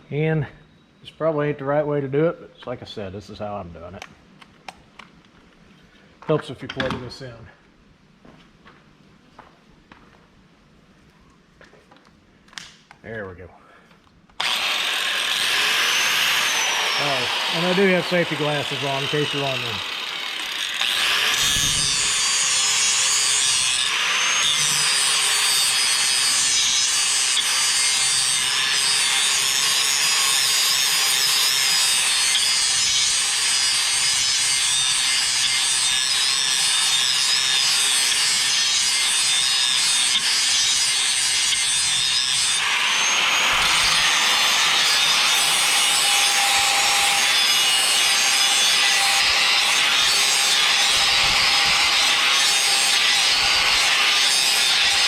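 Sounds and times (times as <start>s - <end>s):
electric grinder grinding steel: 14.4s - 55.0s.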